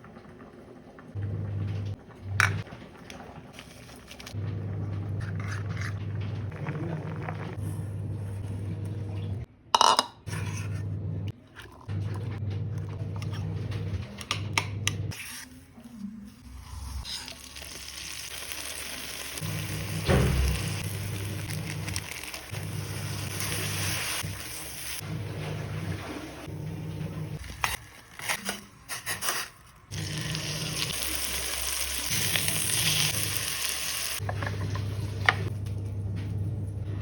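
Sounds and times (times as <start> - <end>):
food sizzling: 16.5 - 26.6, 29.9 - 35.4
low hum: 34.4 - 37.0.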